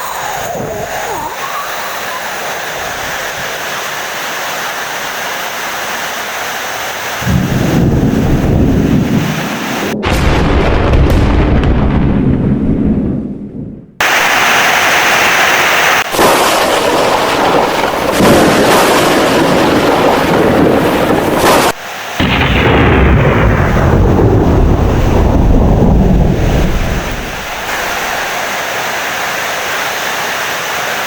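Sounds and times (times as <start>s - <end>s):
heavy rain: 0.0s - 10.4s, 14.0s - 31.0s
thunder rumbling: 7.2s - 28.4s.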